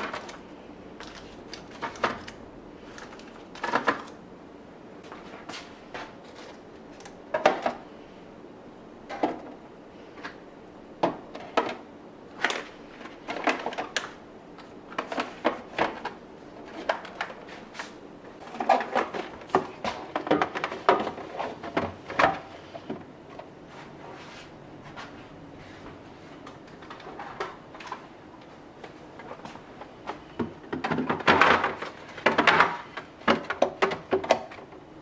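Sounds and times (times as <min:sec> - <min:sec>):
containers knocking and clattering: 0:06.0 - 0:07.8, 0:18.4 - 0:23.1, 0:29.2 - 0:34.8.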